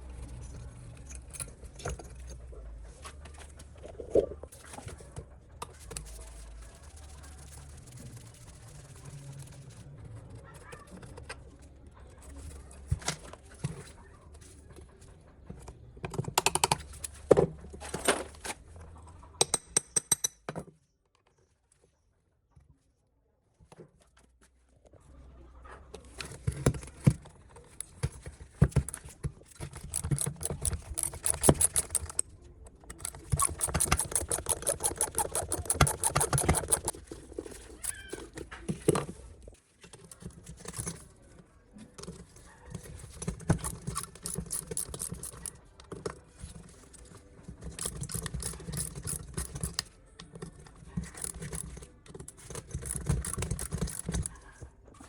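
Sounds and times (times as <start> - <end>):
metal clinks and knocks: 28.6 - 39.0, 43.2 - 45.6, 47.6 - 49.9, 51.0 - 54.4
tool scraping metal: 29.6 - 32.2, 32.9 - 37.8, 43.5 - 45.5, 47.7 - 49.8, 52.4 - 54.3.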